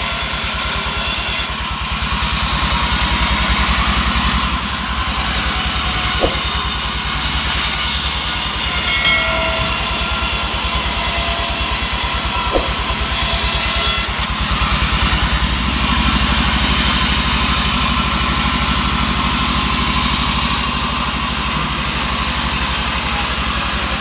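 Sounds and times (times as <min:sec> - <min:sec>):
engine running at rapid beat: 0:00.0 - 0:08.8, 0:14.1 - 0:24.0
saw hissing through wood: 0:02.7 - 0:24.0.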